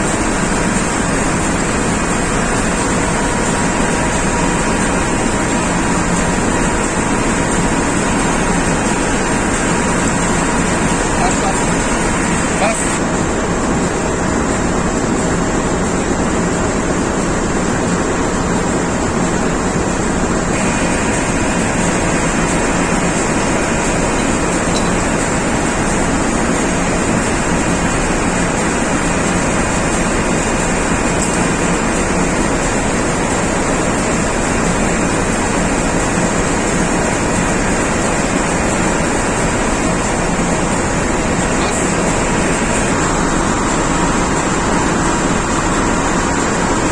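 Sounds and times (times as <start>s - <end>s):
faint machine whines: 0.0s - 46.9s
machinery roar: 0.0s - 46.9s.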